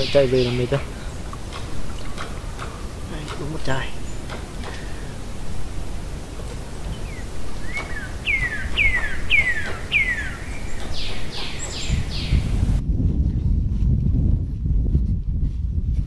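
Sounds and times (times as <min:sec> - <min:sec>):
bird singing whistled notes: 0:06.9 - 0:12.6.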